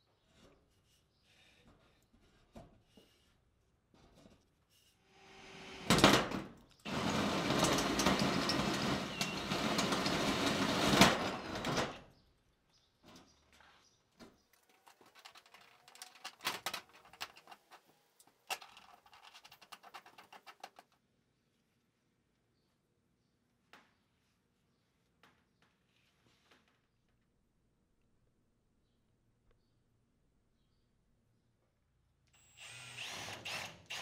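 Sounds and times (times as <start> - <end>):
power drill cutting sheet metal: 5.1 - 12.0, 32.4 - 34.0.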